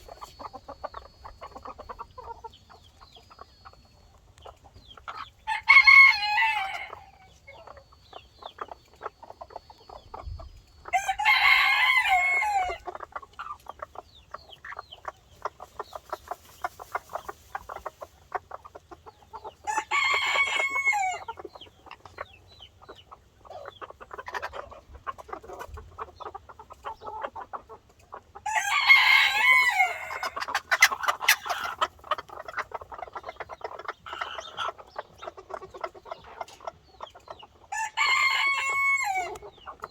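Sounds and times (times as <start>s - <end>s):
chickens clucking: 0.0s - 39.9s
rooster crowing: 5.5s - 7.3s, 10.9s - 12.8s, 28.5s - 30.3s, 37.7s - 39.4s.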